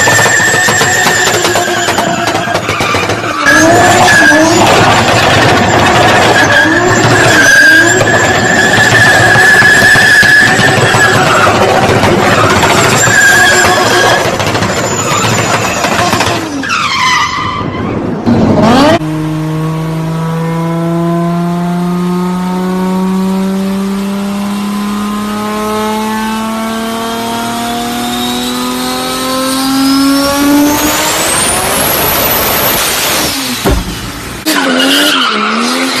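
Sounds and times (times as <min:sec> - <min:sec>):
turbo whistle: 0:06.4 - 0:11.6
turbocharged car engine revving: 0:18.3 - 0:36.0.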